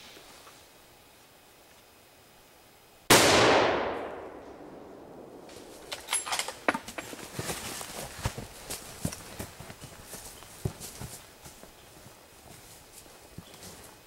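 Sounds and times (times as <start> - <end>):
rifle shot with echo: 3.1 - 5.9.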